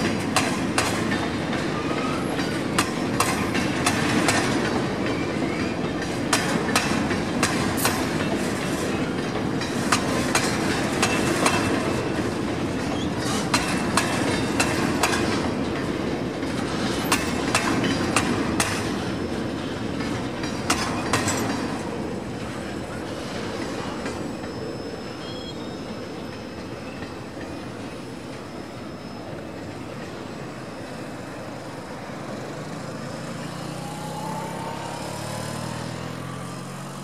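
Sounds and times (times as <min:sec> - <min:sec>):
wheels clicking over rail joints: 0:00.0 - 0:24.6
freight train rumbling past: 0:00.0 - 0:37.0.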